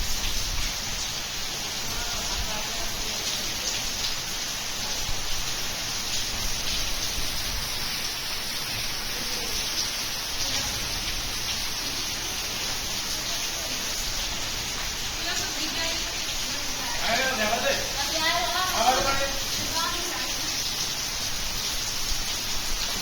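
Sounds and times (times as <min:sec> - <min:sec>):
heavy rain falling: 0:00.0 - 0:23.0
raindrop impacts: 0:01.8 - 0:23.0.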